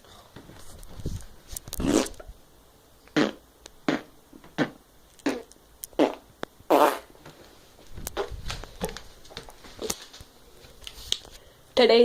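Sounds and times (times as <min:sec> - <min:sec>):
fart-like noises: 0:01.7 - 0:02.3, 0:03.1 - 0:07.1.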